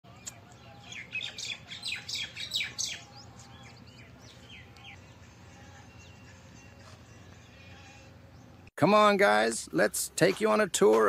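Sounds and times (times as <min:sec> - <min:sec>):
small birds chirping: 0:00.1 - 0:08.7.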